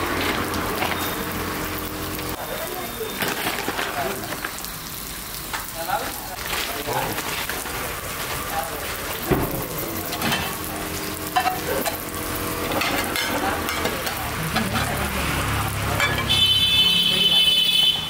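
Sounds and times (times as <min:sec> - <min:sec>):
dosas sizzling in pans: 0:00.0 - 0:18.0
clinks of lids and utensils: 0:03.2 - 0:04.6, 0:10.1 - 0:10.7, 0:11.3 - 0:15.1, 0:16.0 - 0:16.4.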